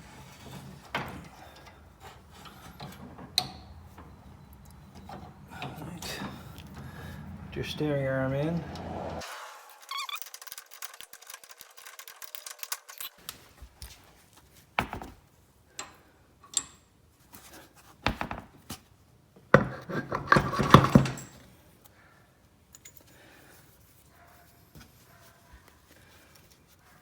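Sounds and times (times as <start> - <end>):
metal parts rattling: 9.8 - 13.2
metal parts clicking and knocking: 9.9 - 13.3.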